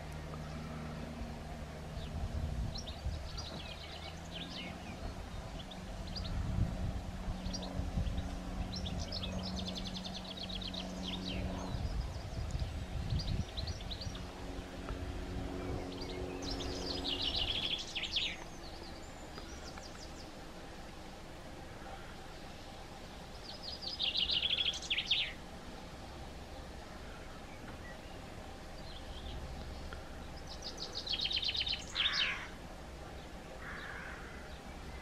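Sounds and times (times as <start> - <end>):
low steady hum: 0.0 - 35.0
small birds chirping: 0.0 - 35.0
rapid bird trills: 15.4 - 20.8, 21.6 - 35.0.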